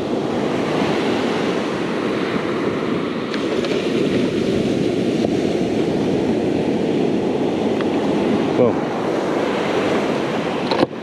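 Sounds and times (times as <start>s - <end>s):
ocean surf: 0.0s - 11.0s
wind rumbling on microphone: 0.0s - 11.0s.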